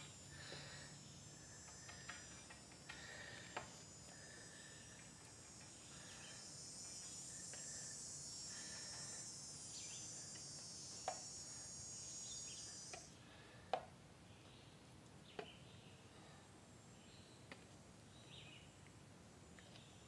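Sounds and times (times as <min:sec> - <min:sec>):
high-pitched insect chorus: 0:00.0 - 0:13.2.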